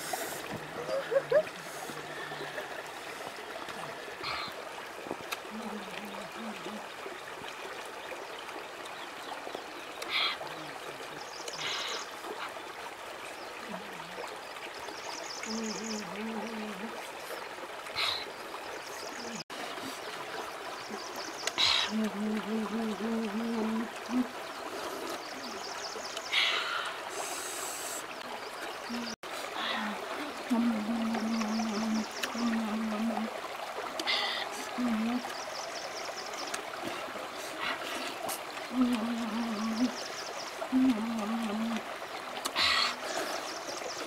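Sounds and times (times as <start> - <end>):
stream flowing: 0.0 - 44.0
low hummed voice: 5.5 - 6.9, 21.8 - 24.3, 38.7 - 40.0, 40.7 - 41.8.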